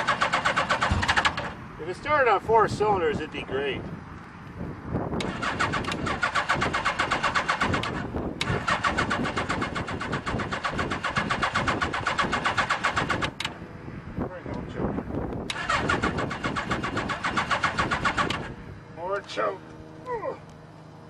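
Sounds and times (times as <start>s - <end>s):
engine cranking on starter: 0.0s - 1.6s, 5.2s - 13.6s, 15.5s - 18.6s.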